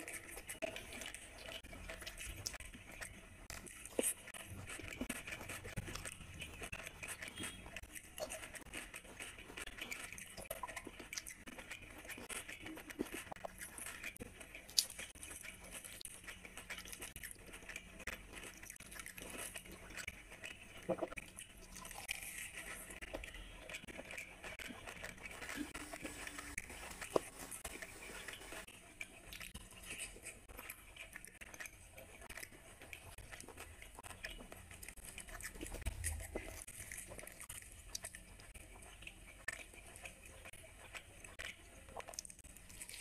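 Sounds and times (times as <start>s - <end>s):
person chewing food: 0.0s - 43.0s
wet mouth clicks and smacks: 20.8s - 22.2s.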